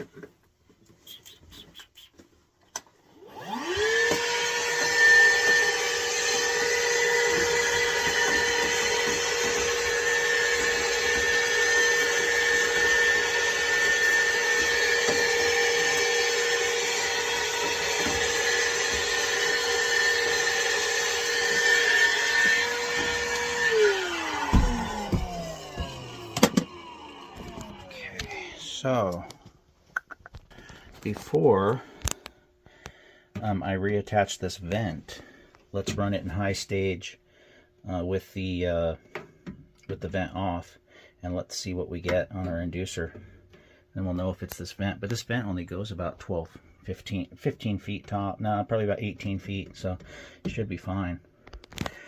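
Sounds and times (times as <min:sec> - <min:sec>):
electric fan humming: 0:03.2 - 0:29.5.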